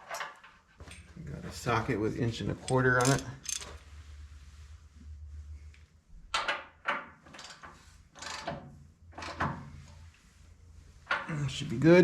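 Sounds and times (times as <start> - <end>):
socket ratchet clicking: 3.0 - 3.7.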